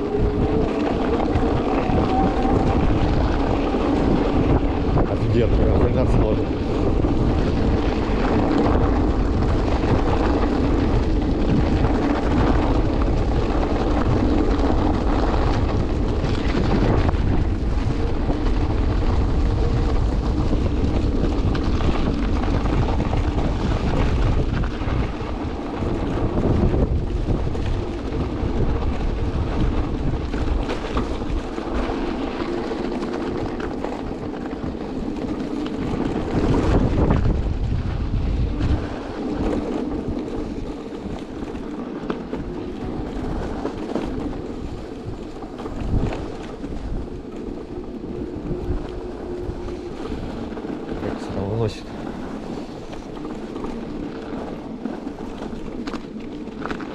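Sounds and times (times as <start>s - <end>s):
wind buffeting microphone: 0.0s - 56.9s.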